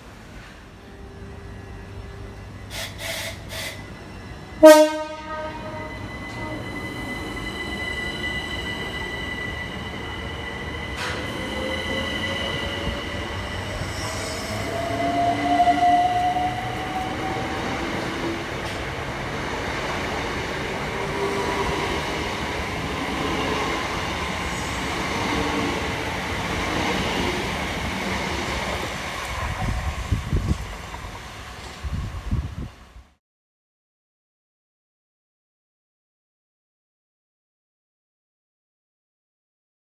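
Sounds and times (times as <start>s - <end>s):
electric train whine: 0.0s - 33.1s
steady high tones: 5.5s - 28.7s
wheel and rail noise: 5.6s - 33.0s.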